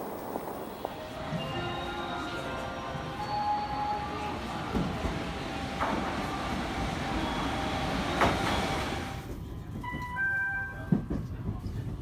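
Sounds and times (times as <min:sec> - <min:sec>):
faint high whining tones: 0:00.0 - 0:02.4
train rumbling on rails: 0:00.0 - 0:10.2.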